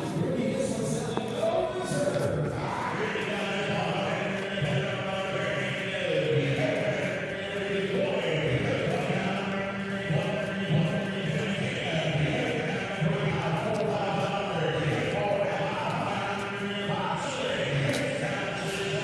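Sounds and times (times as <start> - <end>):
auctioneer chanting bids: 0.0 - 19.0.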